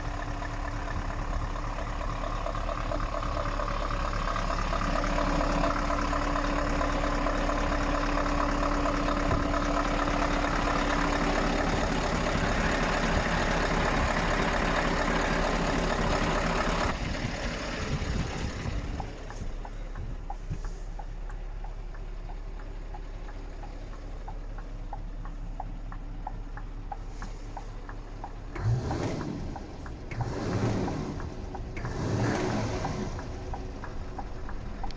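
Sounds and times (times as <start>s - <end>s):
truck diesel engine idling: 0.0s - 34.9s.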